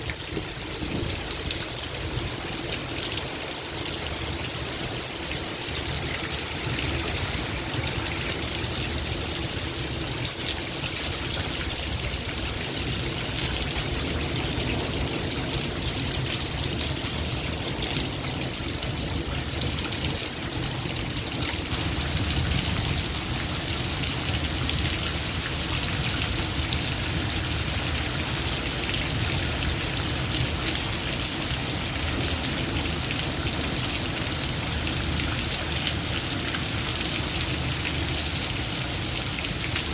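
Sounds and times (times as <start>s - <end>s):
heavy rain falling: 0.0s - 39.9s
water trickling: 4.0s - 14.9s.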